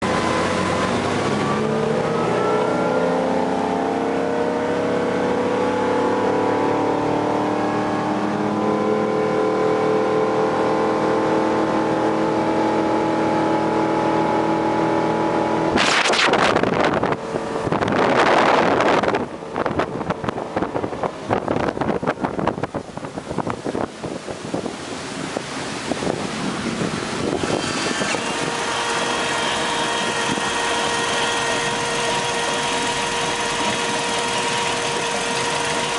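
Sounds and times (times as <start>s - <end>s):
boat engine running: 0.0s - 35.9s
loud rushing noise: 15.7s - 19.3s, 24.5s - 35.9s.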